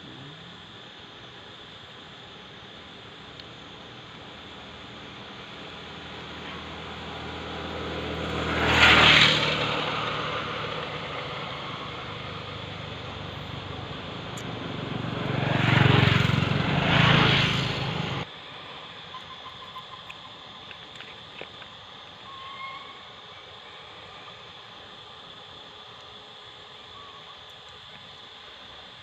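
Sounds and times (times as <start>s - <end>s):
vehicles passing by: 5.4s - 18.3s.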